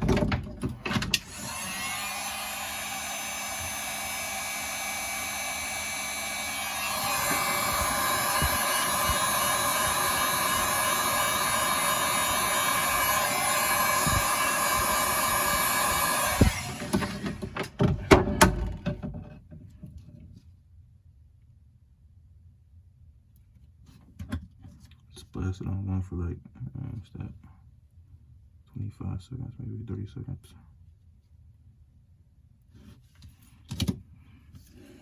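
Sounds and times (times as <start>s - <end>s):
heat gun blowing hot air: 1.1s - 17.5s.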